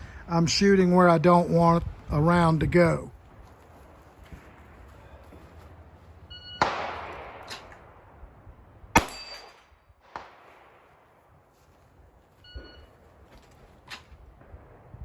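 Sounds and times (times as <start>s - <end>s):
pistol shots: 6.6s - 8.1s, 8.9s - 11.1s
shot timer beep: 12.4s - 12.9s.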